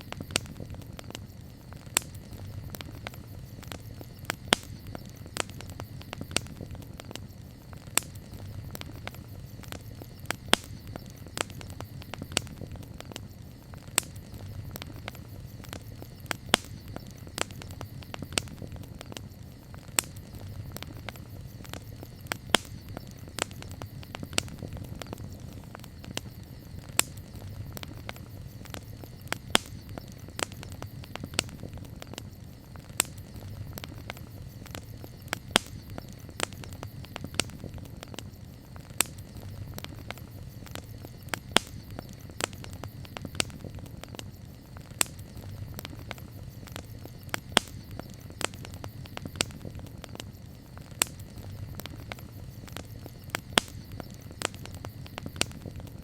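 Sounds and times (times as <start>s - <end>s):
campfire flames rumbling: 0.0s - 56.0s
wood crackling and popping: 0.0s - 56.0s.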